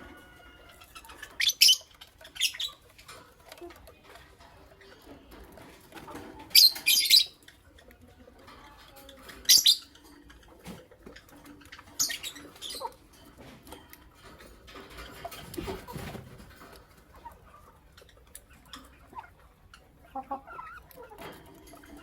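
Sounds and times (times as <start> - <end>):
lovebirds chirping: 0.0 - 3.2, 6.4 - 7.8, 9.0 - 10.4, 11.1 - 13.0.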